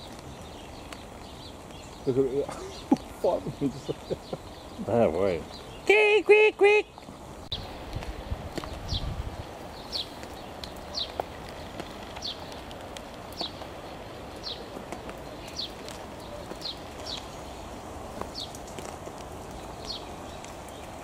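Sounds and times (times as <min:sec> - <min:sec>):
background hiss: 0:00.0 - 0:21.0.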